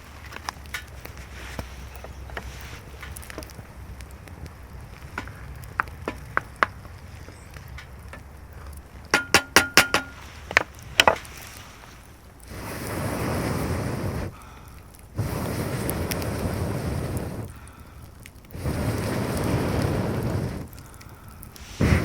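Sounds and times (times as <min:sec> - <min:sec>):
sharp clinks and knocks: 0:09.2 - 0:10.2.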